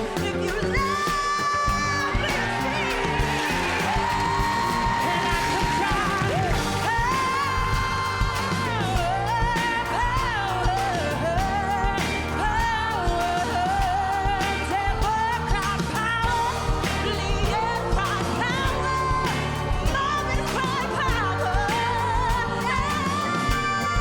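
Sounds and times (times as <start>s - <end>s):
band with steady drum beat: 0.0s - 24.0s.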